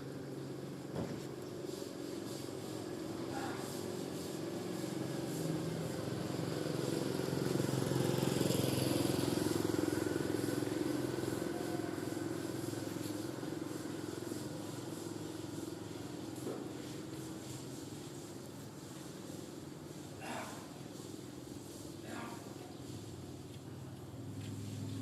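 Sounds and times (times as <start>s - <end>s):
vehicle engine passing by: 4.2s - 15.7s, 22.8s - 25.0s.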